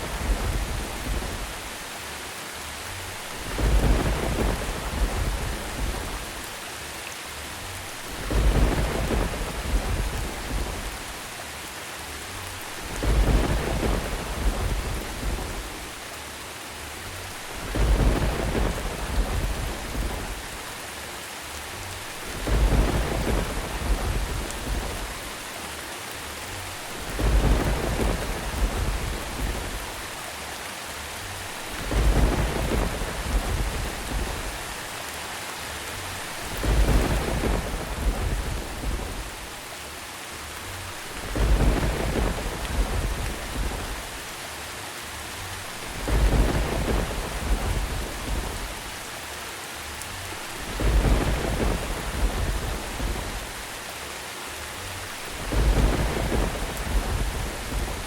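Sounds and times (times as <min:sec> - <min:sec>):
thunder rumbling: 0:00.0 - 0:01.8, 0:03.0 - 0:06.5, 0:07.8 - 0:11.3, 0:12.6 - 0:16.0, 0:17.3 - 0:20.8, 0:21.8 - 0:25.5, 0:26.5 - 0:30.2, 0:31.4 - 0:34.9, 0:36.1 - 0:39.7, 0:40.9 - 0:44.4, 0:45.5 - 0:49.1, 0:50.2 - 0:53.8, 0:55.0 - 0:58.0
steady rain: 0:00.0 - 0:58.0.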